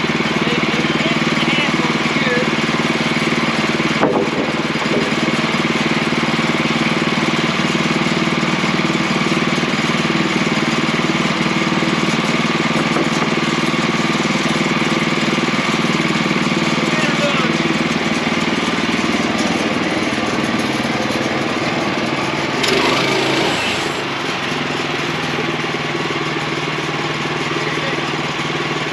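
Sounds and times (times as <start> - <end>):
sawmill engine running: 0.0 - 28.9.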